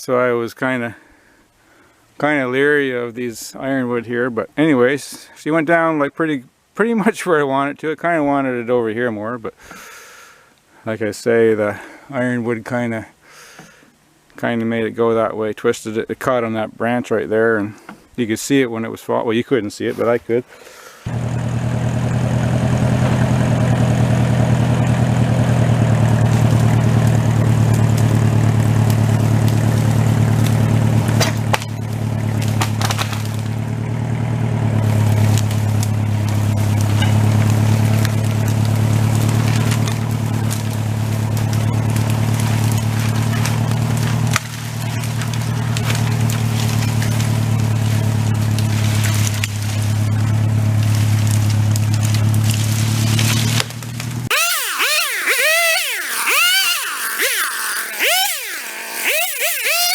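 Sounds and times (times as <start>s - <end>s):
chainsaw running at high revs: 21.1s - 59.9s
wood cracking: 24.9s - 59.9s.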